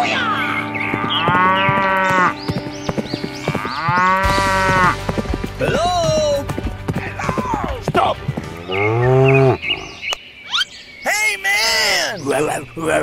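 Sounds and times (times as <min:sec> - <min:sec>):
cow mooing: 0:01.0 - 0:02.4, 0:03.5 - 0:05.0, 0:08.4 - 0:10.1.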